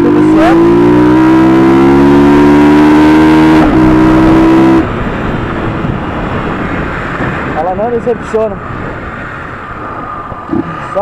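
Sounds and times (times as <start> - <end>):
motorcycle engine revving: 0.0 - 7.6
wind rush: 0.4 - 11.0.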